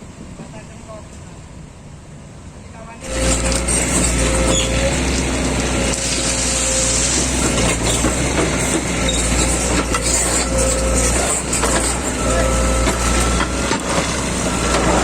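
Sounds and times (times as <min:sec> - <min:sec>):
machinery engine hum: 0:03.0 - 0:15.0.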